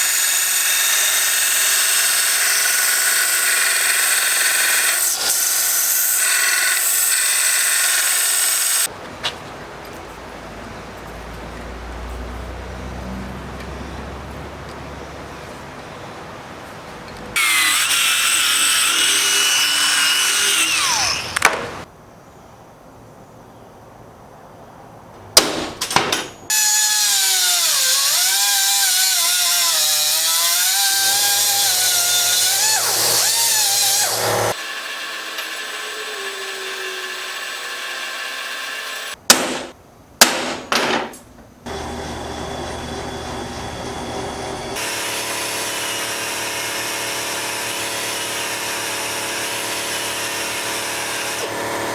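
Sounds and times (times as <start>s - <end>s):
power tool motor whining: 0.0s - 8.9s, 17.4s - 21.8s, 26.5s - 39.2s, 41.7s - 51.9s.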